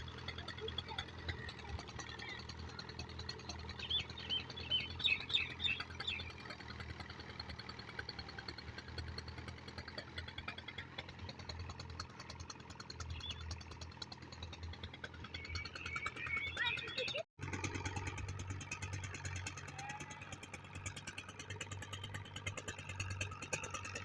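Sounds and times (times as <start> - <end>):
small birds chirping: 3.4 - 6.6, 12.9 - 13.8, 15.2 - 17.2.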